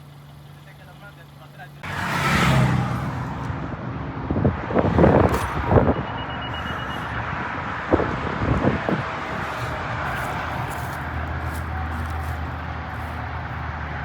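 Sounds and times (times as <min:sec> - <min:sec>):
traffic rumbling: 0:00.0 - 0:14.0
rapid high-pitched beeping: 0:05.8 - 0:07.3.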